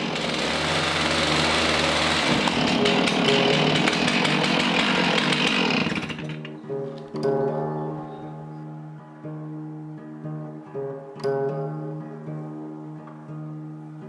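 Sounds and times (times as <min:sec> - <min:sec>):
chainsaw cutting through log: 0:00.0 - 0:07.1.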